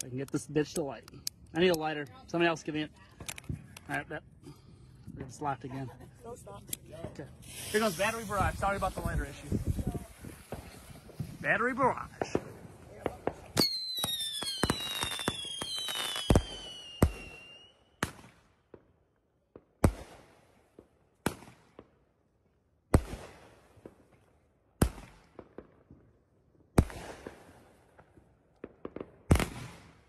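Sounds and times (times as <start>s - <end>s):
small firework pops: 6.7s - 11.3s, 12.1s - 17.4s, 20.8s - 21.9s, 22.9s - 26.1s, 26.8s - 30.0s
firework shots: 6.8s - 18.8s, 19.8s - 21.9s, 22.9s - 24.1s, 24.8s - 25.7s, 26.8s - 30.0s
firework whistles: 7.4s - 11.4s, 13.5s - 18.0s.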